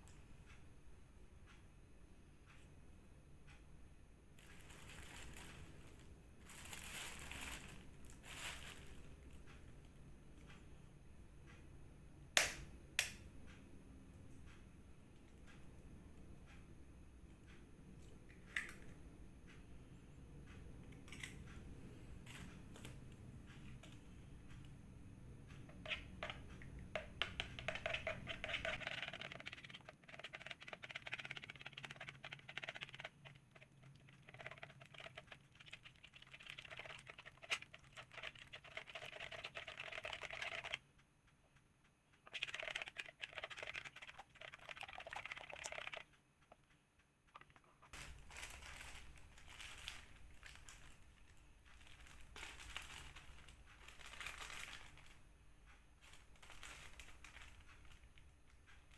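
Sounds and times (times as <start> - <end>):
light rapid clicking and rustling: 25.4 - 58.9.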